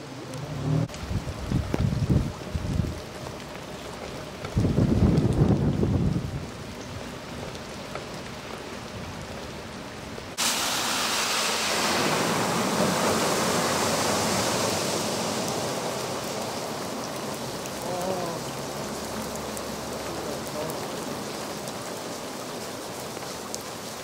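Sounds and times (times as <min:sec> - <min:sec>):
heavy rain hissing: 0:00.0 - 0:24.0
car driving through flood water: 0:10.3 - 0:24.0.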